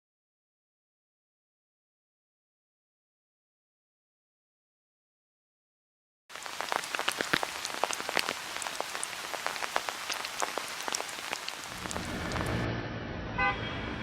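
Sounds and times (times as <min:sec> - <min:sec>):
rain falling: 0:06.3 - 0:12.6.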